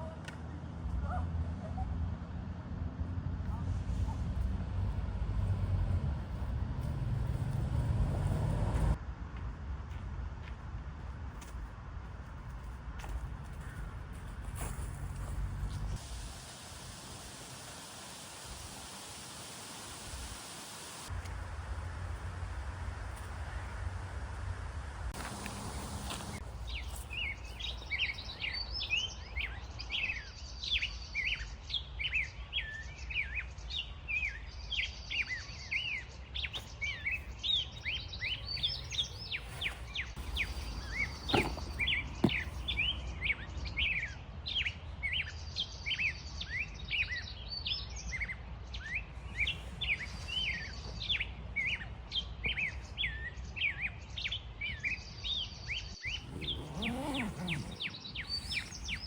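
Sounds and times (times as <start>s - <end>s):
songbirds chirping: 25.1s - 59.0s.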